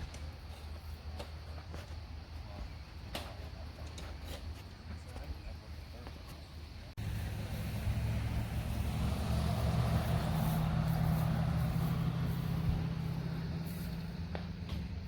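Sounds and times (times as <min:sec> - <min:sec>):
vehicle engine humming: 0:06.6 - 0:15.0.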